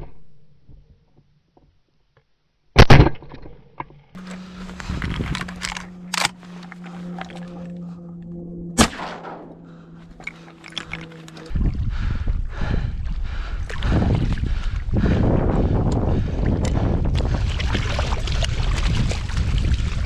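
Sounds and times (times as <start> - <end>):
sharp crack: 4.2 - 7.4, 8.8 - 9.6
wind buffeting microphone: 4.2 - 7.6, 10.1 - 20.0
steady low hum: 4.2 - 17.1
shotgun firing: 4.3 - 6.5, 8.8 - 9.6.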